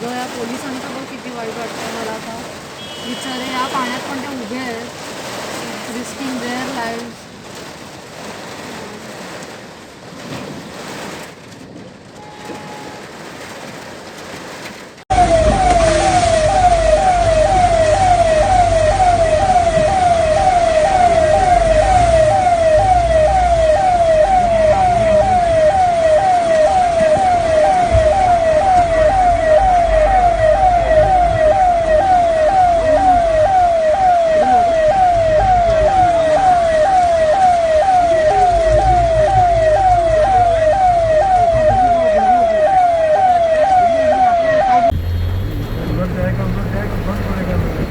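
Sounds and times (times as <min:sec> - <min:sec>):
siren yelping: 0:15.1 - 0:46.0.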